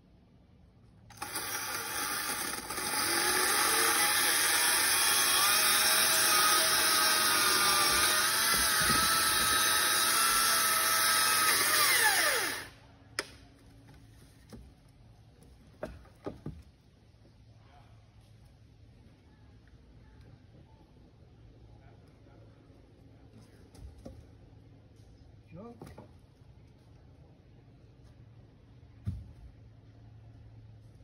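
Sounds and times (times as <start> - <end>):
battery chainsaw whining: 1.1 - 12.8.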